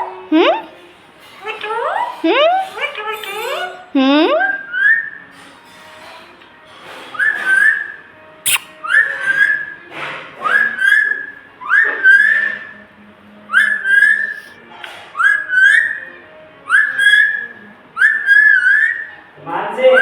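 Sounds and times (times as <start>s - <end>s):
parrot whistling: 7.2s - 12.8s, 13.5s - 20.0s
sharp click: 8.5s - 8.7s.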